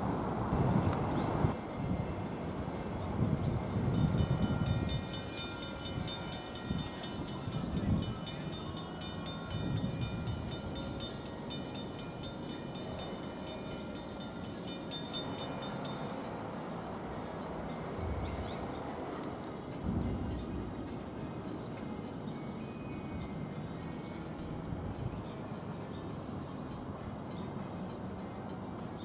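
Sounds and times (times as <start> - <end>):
electric train rumbling past: 0.0 - 29.0
crossing bell ringing: 3.7 - 24.4.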